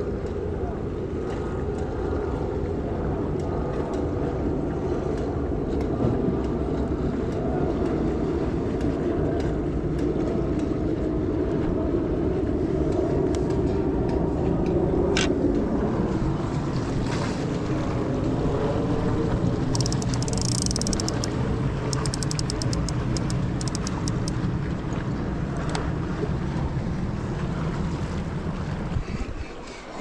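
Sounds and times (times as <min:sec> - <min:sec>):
wind buffeting microphone: 0:00.0 - 0:29.8
surf on rocky shore: 0:15.3 - 0:30.0
light clicks: 0:19.7 - 0:24.4.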